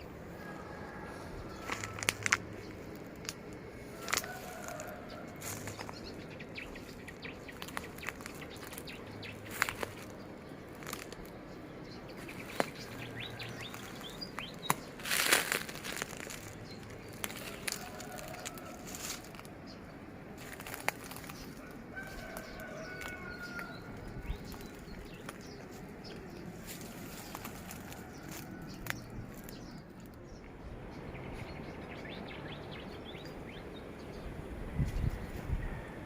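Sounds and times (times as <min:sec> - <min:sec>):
birds chirping: 0:00.0 - 0:36.0
steady background noise: 0:00.0 - 0:36.0
rustling: 0:13.6 - 0:19.5.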